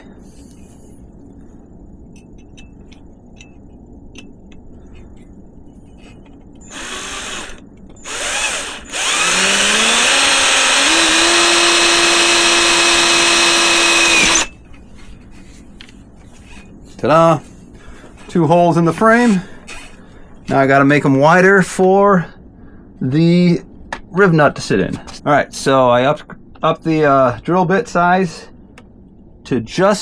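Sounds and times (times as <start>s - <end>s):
power drill boring into metal: 6.7s - 14.5s.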